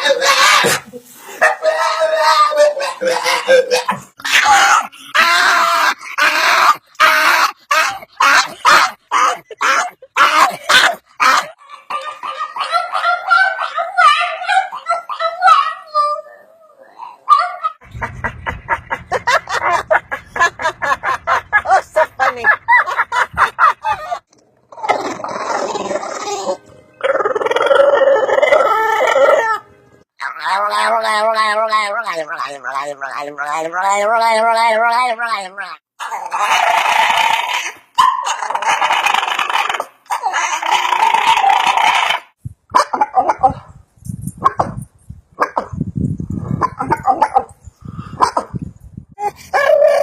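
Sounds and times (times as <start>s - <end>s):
dog barking: 7.8s - 15.8s, 17.3s - 17.8s, 38.0s - 38.4s, 44.4s - 44.8s.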